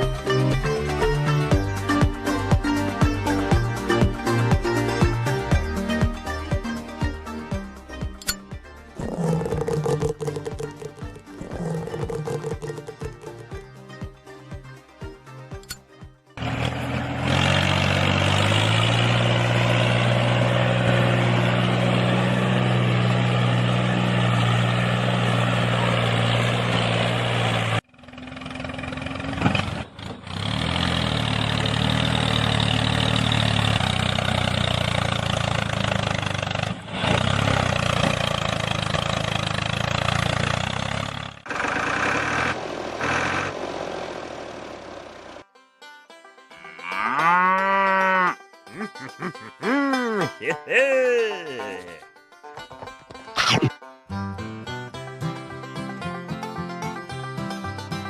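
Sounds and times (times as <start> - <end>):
engine low drone: 0.0 - 13.9, 16.4 - 45.5.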